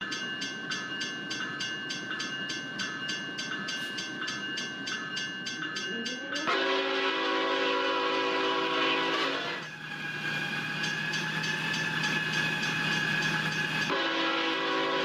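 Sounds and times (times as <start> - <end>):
railroad crossing bell ringing: 0.0 - 15.0
train rumbling: 0.0 - 15.0
locomotive air horn chord: 6.5 - 9.7, 13.9 - 15.0.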